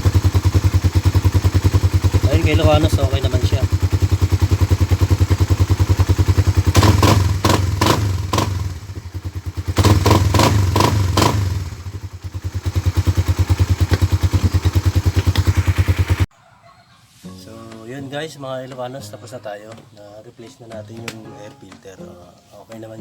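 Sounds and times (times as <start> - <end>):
motorcycle engine idling and revving: 0.0 - 16.3.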